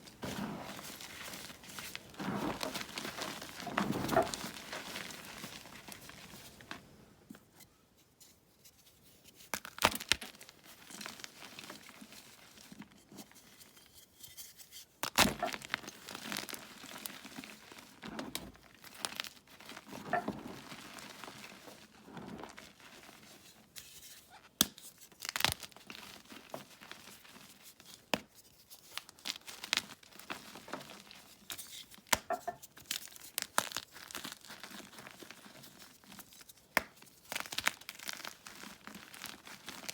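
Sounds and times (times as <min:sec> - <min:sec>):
powdery crumbling: 0:00.0 - 0:07.0, 0:15.1 - 0:23.4, 0:29.0 - 0:39.9
chalk crunching and snapping: 0:09.3 - 0:10.4.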